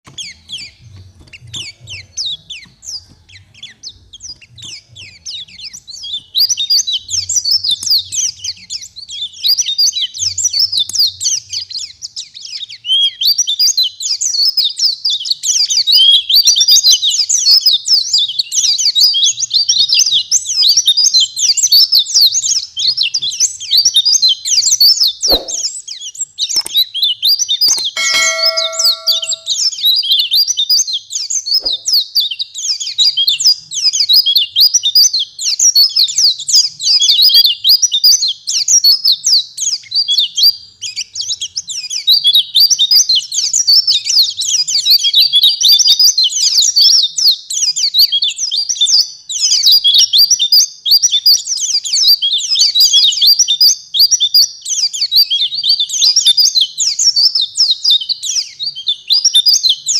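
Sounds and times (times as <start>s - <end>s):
short beep-like tone: 28.0s - 29.5s.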